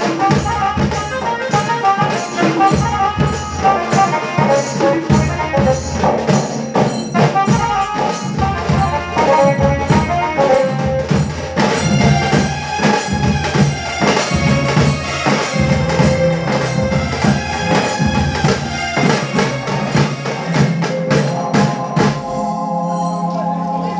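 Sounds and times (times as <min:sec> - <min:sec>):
fast drumming: 0:00.0 - 0:23.9
melody line: 0:14.8 - 0:23.9.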